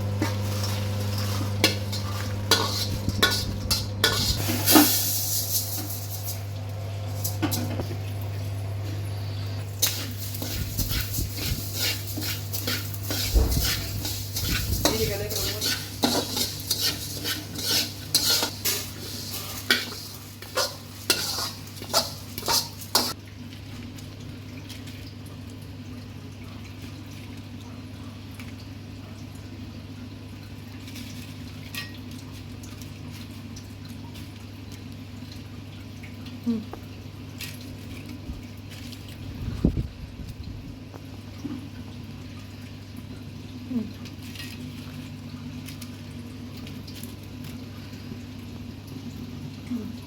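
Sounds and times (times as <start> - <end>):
utensil scraping in metal pan: 0.0 - 6.4, 9.7 - 23.2.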